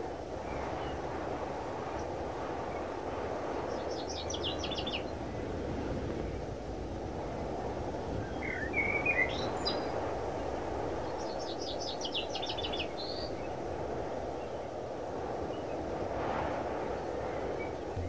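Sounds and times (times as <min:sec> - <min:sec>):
bird singing: 0:08.2 - 0:09.9.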